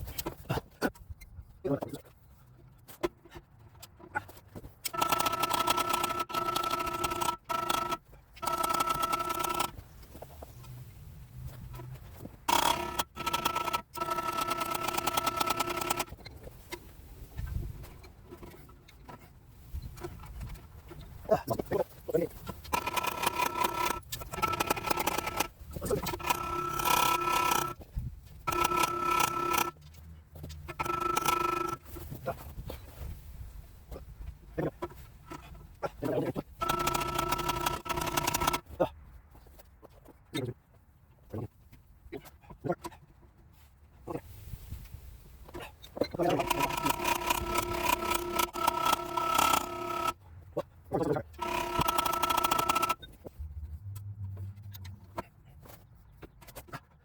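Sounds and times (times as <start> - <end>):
small motor buzzing: 4.9 - 9.8, 12.5 - 16.2, 22.6 - 27.8, 28.4 - 29.8, 30.7 - 31.9, 35.2 - 38.6, 46.2 - 50.2, 51.0 - 53.1.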